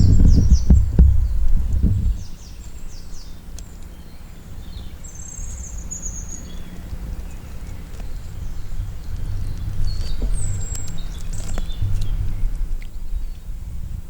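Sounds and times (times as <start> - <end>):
steady low rumble: 0.0 - 3.6, 6.5 - 14.0
small birds chirping: 0.0 - 13.8.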